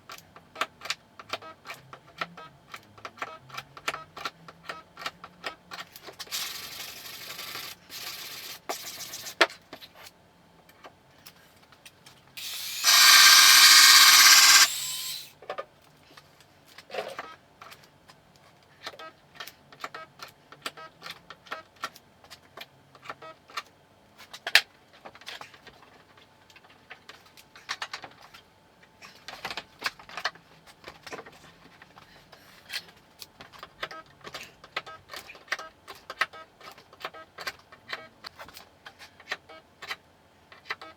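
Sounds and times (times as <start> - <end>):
power tool running: 6.3 - 8.2, 12.4 - 15.3.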